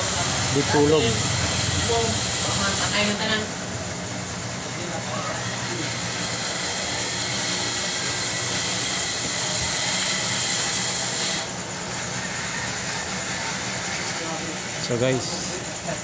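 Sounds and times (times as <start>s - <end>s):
machinery hiss: 0.0s - 3.5s
thin high machine whine: 0.0s - 16.0s.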